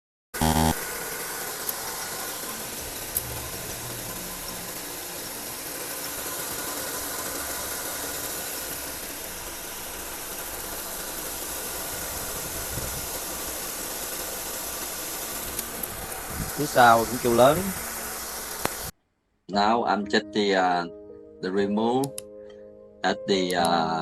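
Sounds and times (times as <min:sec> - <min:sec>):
pulley bearing whirring: 0:00.4 - 0:18.9
car engine idling: 0:00.5 - 0:18.9.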